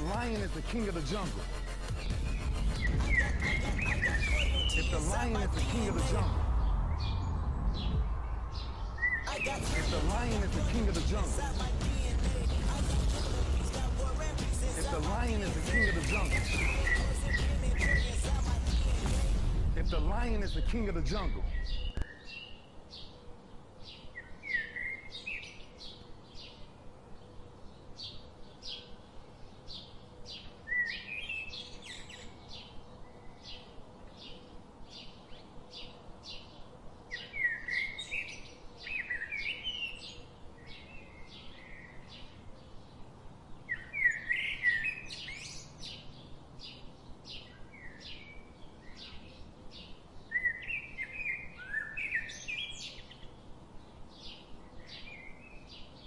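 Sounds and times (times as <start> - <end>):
bird chirps: 0.0 - 10.7, 14.7 - 19.0, 19.8 - 23.2, 27.9 - 56.0
bird warbling phrase: 3.0 - 6.5, 14.7 - 17.1.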